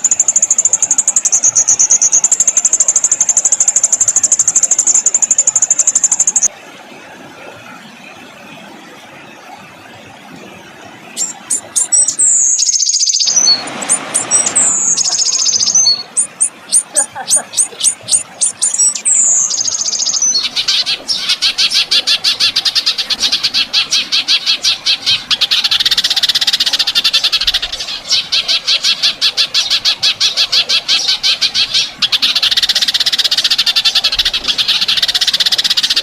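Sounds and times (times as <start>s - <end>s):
songbird singing: 0.0s - 6.5s, 11.0s - 36.0s.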